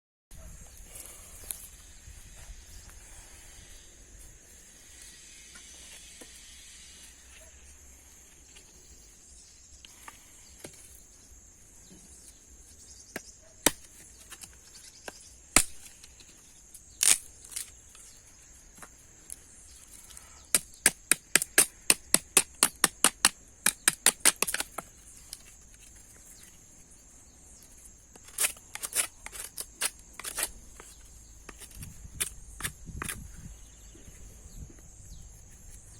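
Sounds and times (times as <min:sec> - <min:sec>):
high-pitched insect drone: 0:00.8 - 0:09.9.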